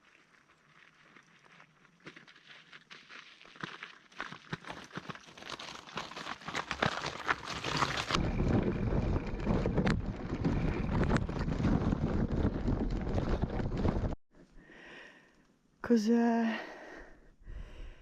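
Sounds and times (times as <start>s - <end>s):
tyres crunching on gravel: 0.0s - 14.1s
wind buffeting microphone: 8.2s - 14.2s.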